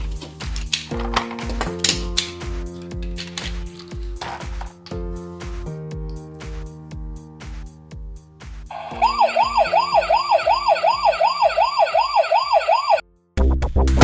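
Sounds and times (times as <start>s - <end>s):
background music with beat: 8.6s - 13.0s
wailing siren: 8.7s - 13.0s.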